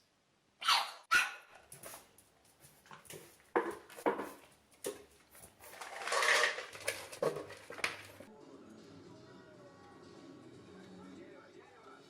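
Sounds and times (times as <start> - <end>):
dog barking: 0.6 - 1.5.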